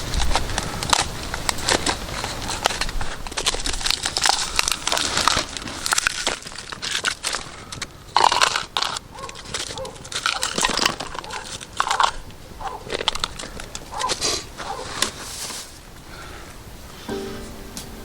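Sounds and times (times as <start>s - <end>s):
irregular crunching and crackling: 0.0s - 16.5s
music with steady tones: 17.1s - 18.0s.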